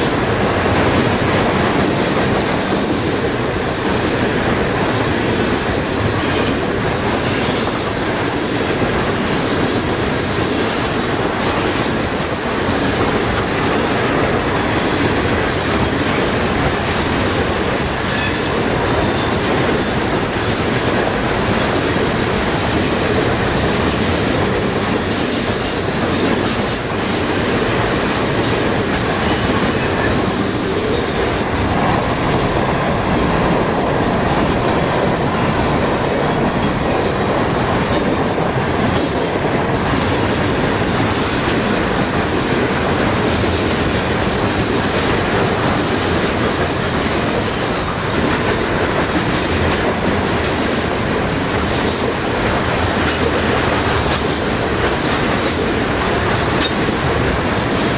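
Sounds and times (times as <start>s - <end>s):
train wheels on rails: 0.0s - 57.9s
high wheel squeals: 0.2s - 12.6s.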